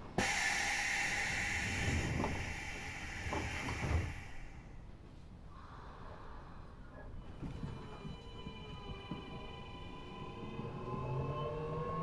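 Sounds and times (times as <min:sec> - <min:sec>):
sliding doors air hiss: 0:00.0 - 0:04.8.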